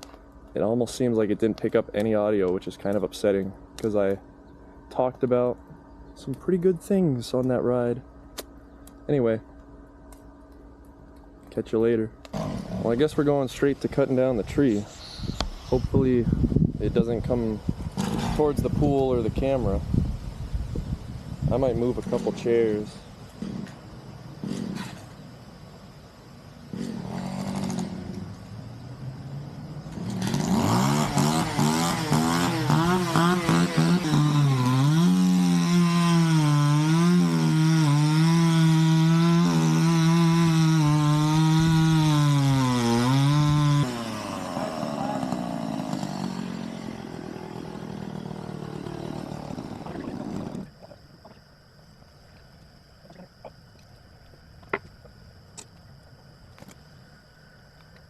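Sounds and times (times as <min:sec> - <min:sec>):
chainsaw revving and cutting: 0:12.3 - 0:13.0, 0:17.9 - 0:18.4, 0:23.4 - 0:23.8, 0:24.4 - 0:25.1, 0:26.7 - 0:28.4, 0:29.9 - 0:50.8.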